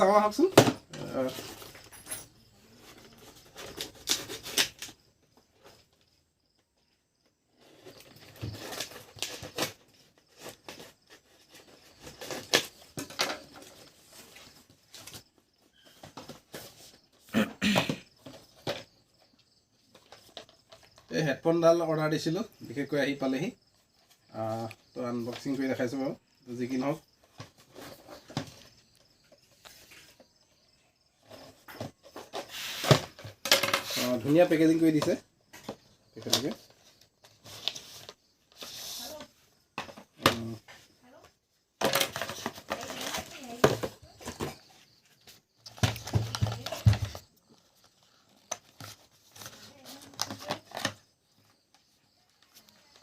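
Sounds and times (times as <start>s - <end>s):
plastic and paper packaging rustling: 0.0s - 6.0s, 7.6s - 17.2s, 31.2s - 41.2s, 41.8s - 53.0s
faint crickets chirping: 0.0s - 53.0s
packaging rustling and knocking: 41.8s - 51.1s.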